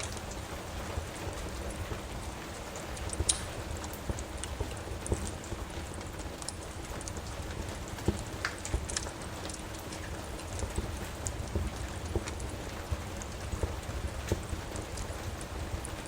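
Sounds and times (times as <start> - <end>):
rain hiss: 0.0 - 16.0
wood fire crackling: 0.0 - 16.0.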